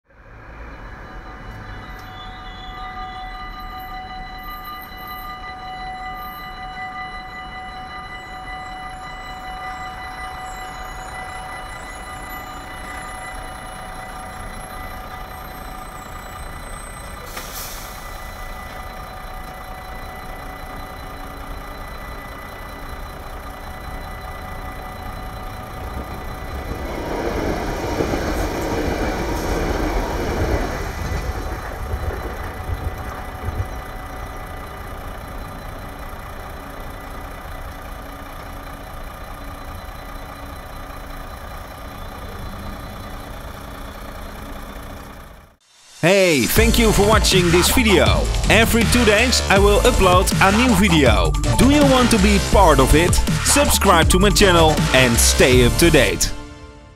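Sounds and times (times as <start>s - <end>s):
train passing: 0.1s - 56.9s
level crossing bells ringing: 0.2s - 56.4s.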